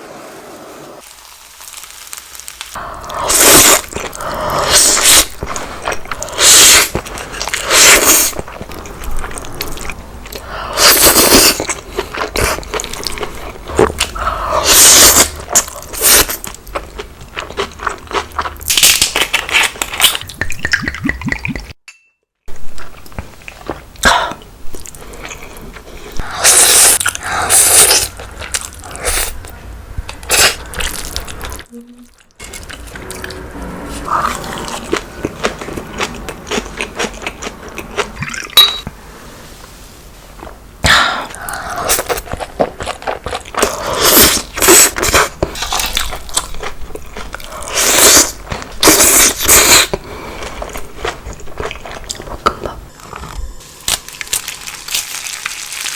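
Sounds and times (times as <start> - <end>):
wet chewing: 24.7 - 38.7, 41.2 - 55.6
mouth noise: 31.7 - 32.2.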